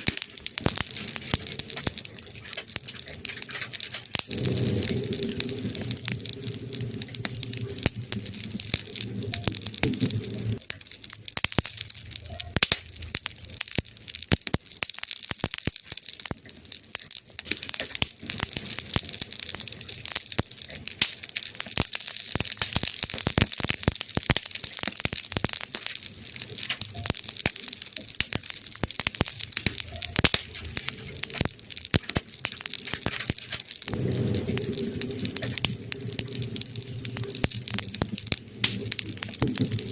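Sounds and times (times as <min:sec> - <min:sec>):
wood fire crackling and popping: 0:00.0 - 0:39.9
low rumble: 0:00.6 - 0:10.7, 0:33.8 - 0:39.9.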